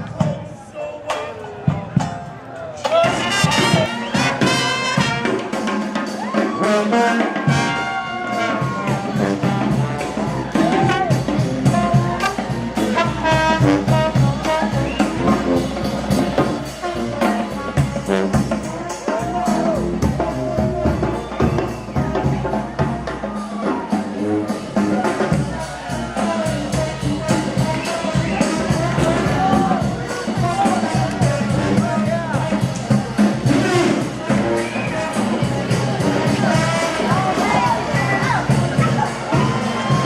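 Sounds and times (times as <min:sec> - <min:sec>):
brass jazz band: 0:02.9 - 0:40.0
low bass line: 0:08.6 - 0:34.5.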